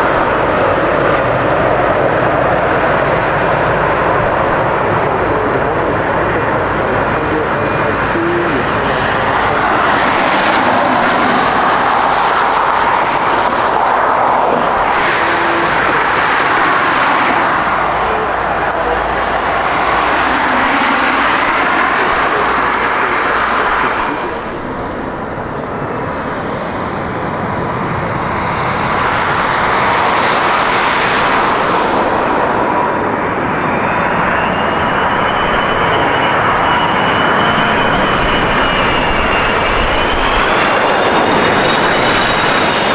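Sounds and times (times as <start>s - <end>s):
jet airliner engines: 0.0s - 42.9s
jet fan whine: 2.8s - 42.6s.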